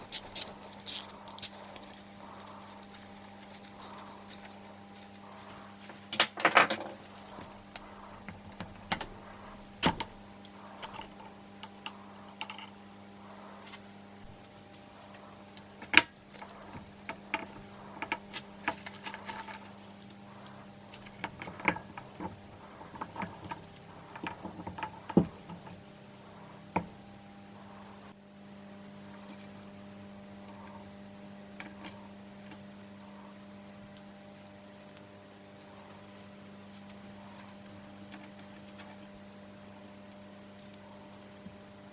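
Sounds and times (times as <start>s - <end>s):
tools and metal parts clinking: 0.0s - 5.2s, 15.8s - 20.0s, 20.9s - 25.8s
electrical hum: 0.0s - 41.9s.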